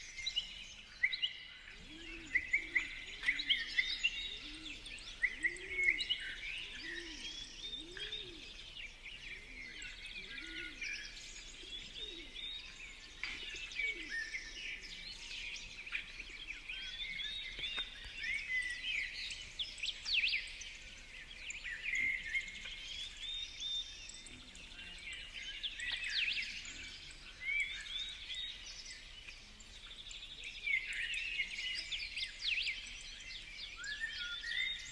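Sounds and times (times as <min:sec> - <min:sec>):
low repeated bird call: 0:00.0 - 0:19.8
birds chirping and calling: 0:00.0 - 0:34.9.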